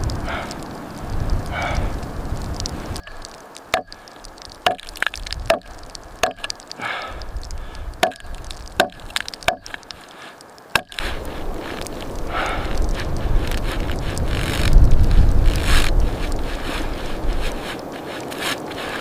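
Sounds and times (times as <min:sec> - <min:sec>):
axe chopping wood: 0:03.7 - 0:04.0, 0:04.6 - 0:06.5, 0:08.0 - 0:09.8, 0:10.8 - 0:11.0.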